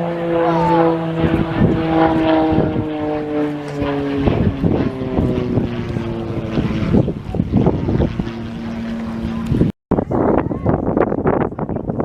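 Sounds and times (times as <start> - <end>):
propeller aircraft engine droning: 0.0 - 12.0
wind buffeting microphone: 0.0 - 12.0.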